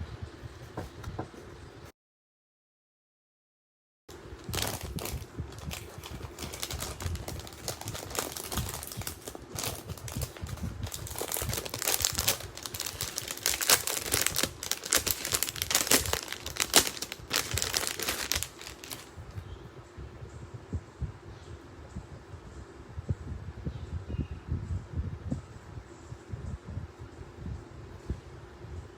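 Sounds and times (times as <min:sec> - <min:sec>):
packaging crinkling and rustling: 0:04.4 - 0:19.4.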